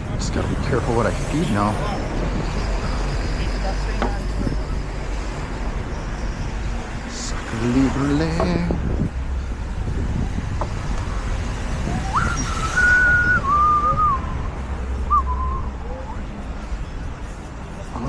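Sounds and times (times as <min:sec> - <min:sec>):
wind rumble on microphone: 0:00.0 - 0:16.4
person whistling: 0:12.0 - 0:16.2.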